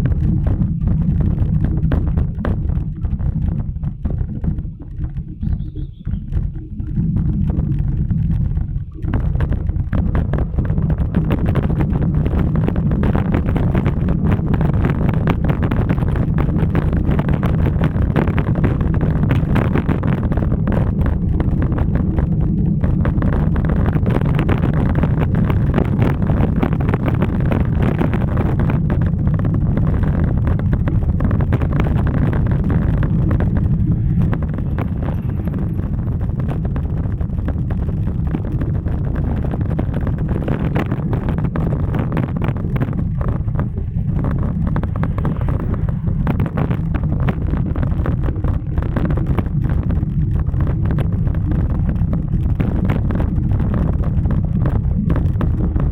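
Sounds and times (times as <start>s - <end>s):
wind buffeting microphone: 0.0s - 55.9s.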